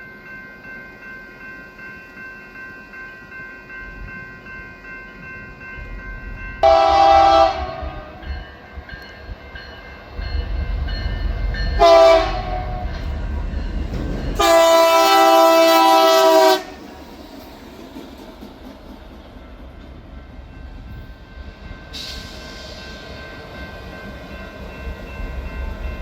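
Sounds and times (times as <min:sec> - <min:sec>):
train rumbling: 0:02.5 - 0:26.0
locomotive air horn blasts: 0:06.6 - 0:08.2, 0:11.8 - 0:12.9, 0:14.4 - 0:16.8.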